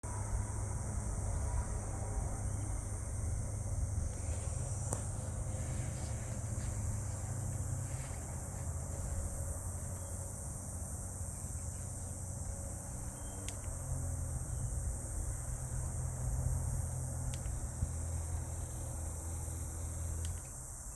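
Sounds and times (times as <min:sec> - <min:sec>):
ceiling fan humming and hissing: 0:00.0 - 0:20.9
faint clicks: 0:13.1 - 0:13.8, 0:17.2 - 0:17.7, 0:20.0 - 0:20.6.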